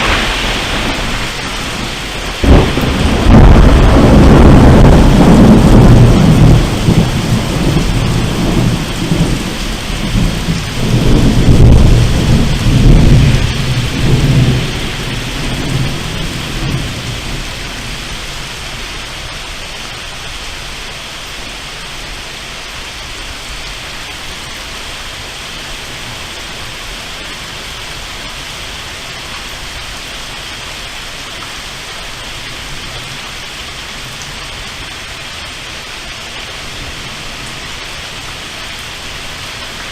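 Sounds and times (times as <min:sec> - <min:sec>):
thunder rumbling: 0:00.0 - 0:19.3
steady rain: 0:00.0 - 0:39.9.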